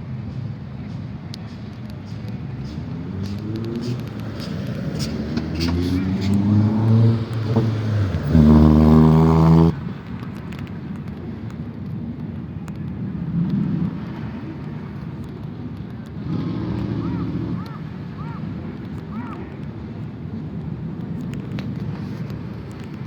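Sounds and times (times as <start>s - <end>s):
steady-pitched vehicle tone: 0.0s - 9.9s
vehicle and street noise: 0.0s - 23.0s.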